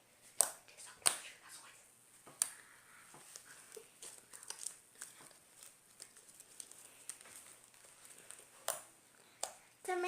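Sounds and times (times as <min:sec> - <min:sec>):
slime crackling and popping: 0:03.7 - 0:09.6.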